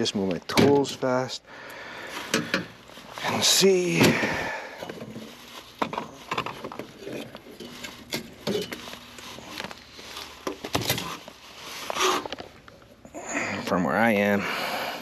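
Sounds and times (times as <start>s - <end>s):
hand tools clicking and knocking: 2.3s - 2.8s.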